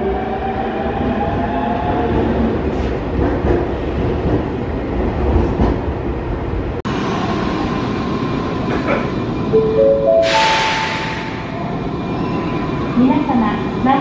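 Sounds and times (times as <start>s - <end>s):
electric train departing: 0.0s - 14.0s
parked train high whine: 6.9s - 14.0s.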